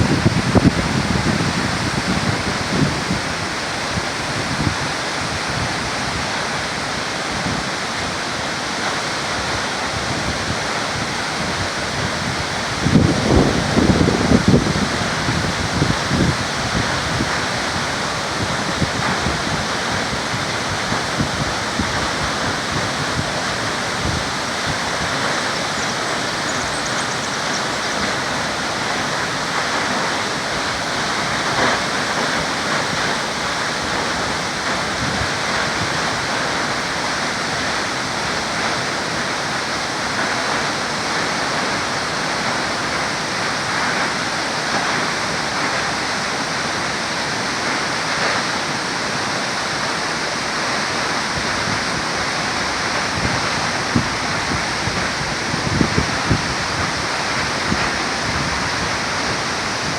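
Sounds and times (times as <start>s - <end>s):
waterfall roaring: 0.0s - 59.9s
wind gusts on microphone: 0.0s - 59.9s.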